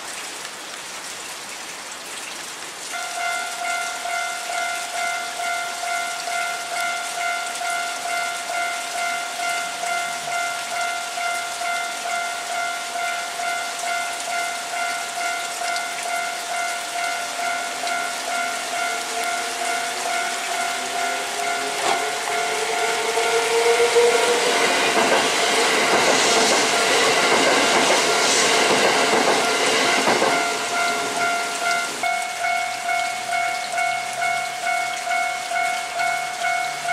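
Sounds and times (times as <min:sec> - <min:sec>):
level-crossing alarm dinging: 0:03.0 - 0:36.9
train whine: 0:17.0 - 0:32.9
train wheels clattering: 0:21.3 - 0:31.5.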